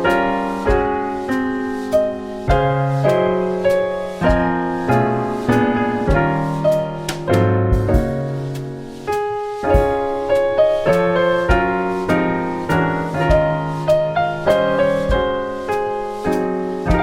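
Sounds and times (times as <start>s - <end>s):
piano chords and notes: 0.0s - 17.0s.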